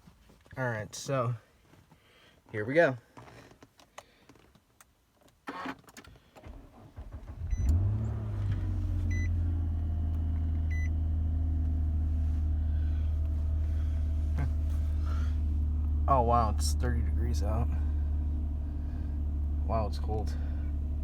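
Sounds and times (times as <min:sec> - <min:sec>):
car engine cranking and idling: 0:05.4 - 0:21.0.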